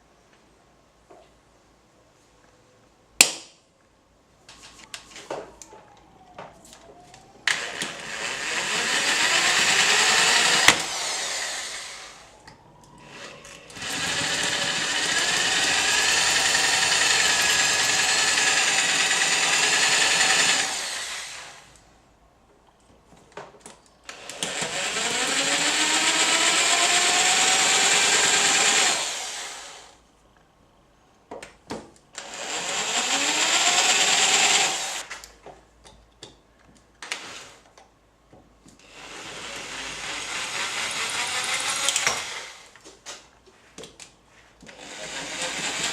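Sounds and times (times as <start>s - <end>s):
angle grinder grinding metal: 13.2s - 21.5s.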